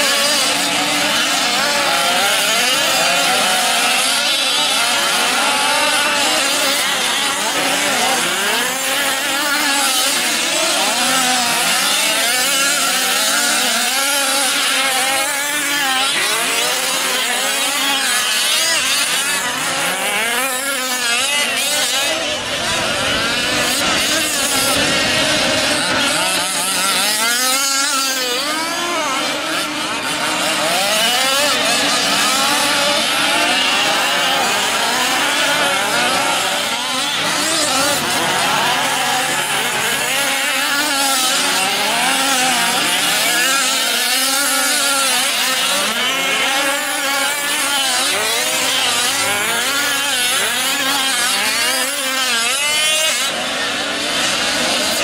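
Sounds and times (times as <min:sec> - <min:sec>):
small two-stroke engines revving: 0:00.0 - 0:55.0.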